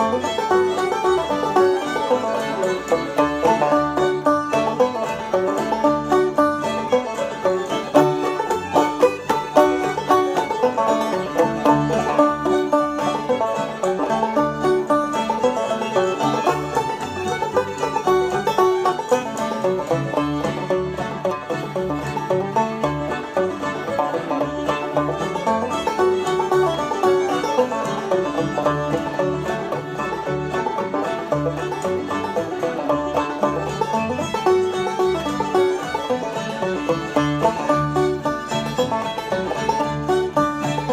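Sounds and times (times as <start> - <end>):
plucked strings: 0.0 - 40.9.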